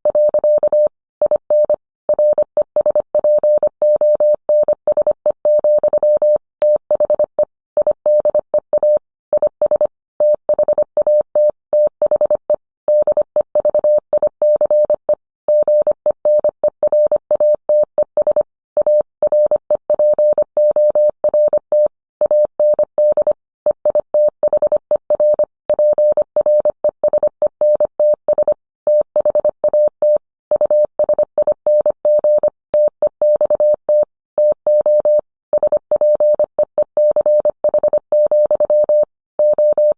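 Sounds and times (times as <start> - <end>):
morse code beeps: 0.1 - 39.9.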